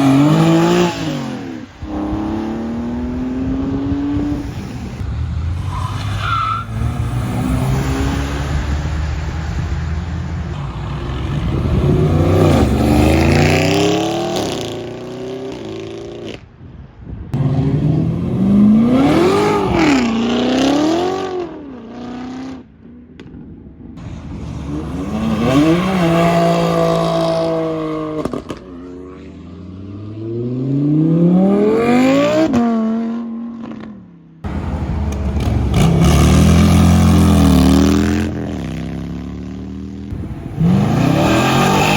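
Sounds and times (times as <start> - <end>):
car engines revving and accelerating: 0.0 - 16.5, 17.3 - 41.9.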